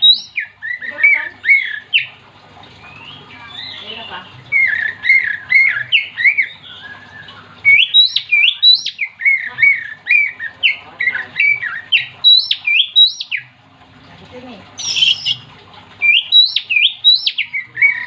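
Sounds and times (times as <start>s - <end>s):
bird singing whistled notes: 0.0s - 2.1s, 4.6s - 13.4s, 14.8s - 18.0s.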